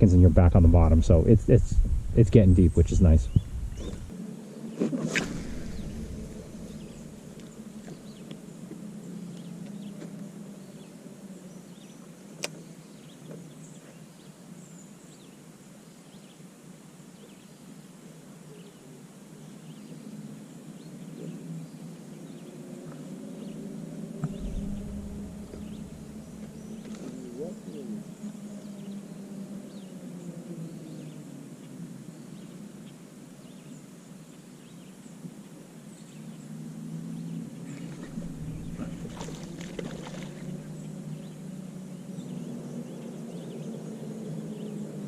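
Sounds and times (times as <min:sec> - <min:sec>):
steady low hum: 0:00.0 - 0:04.2, 0:05.1 - 0:10.4, 0:23.9 - 0:28.6, 0:37.6 - 0:42.2.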